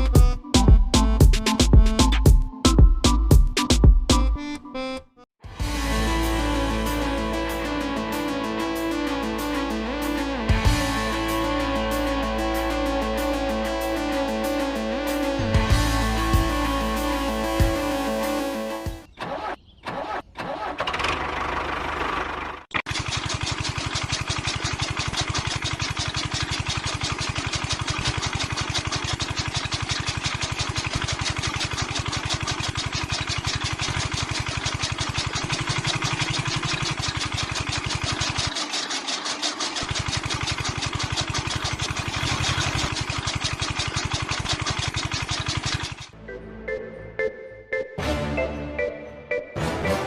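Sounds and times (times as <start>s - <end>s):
small engine chugging: 6.1s - 47.4s
small engine cranking: 19.1s - 46.2s.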